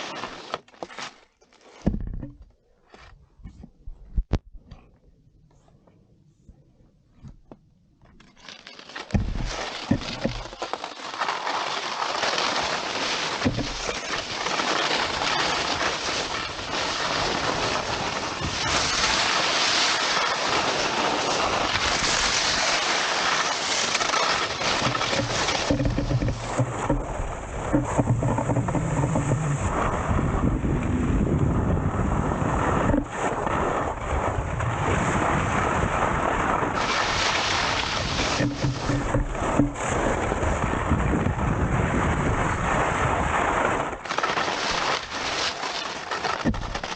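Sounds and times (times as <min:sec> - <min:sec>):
wind buffeting the microphone: 0:25.7 - 0:43.4.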